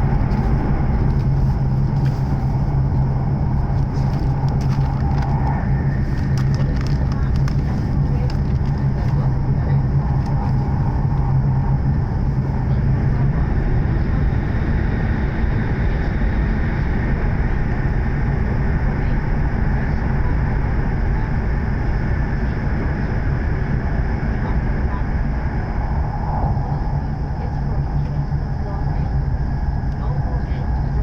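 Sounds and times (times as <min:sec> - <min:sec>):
low hum: 0:00.0 - 0:31.0
train running rumble: 0:00.0 - 0:31.0.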